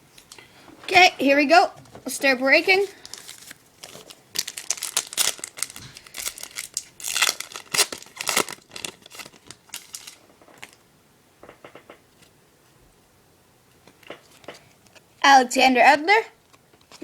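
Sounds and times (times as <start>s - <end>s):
foil wrapper tearing and crinkling: 2.8s - 10.8s.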